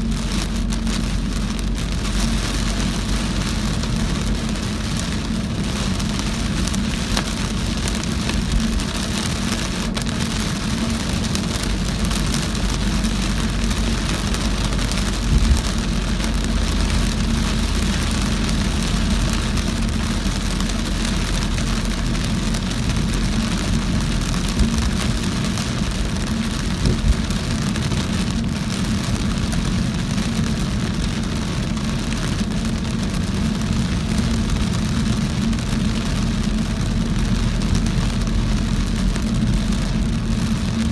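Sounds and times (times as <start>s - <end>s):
engine and road rumble: 0.0s - 40.9s
heavy rain on car: 0.0s - 40.9s.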